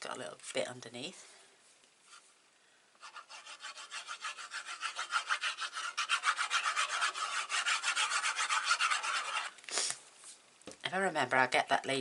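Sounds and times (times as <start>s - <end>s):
fast rubbing on paper card: 3.0s - 9.6s.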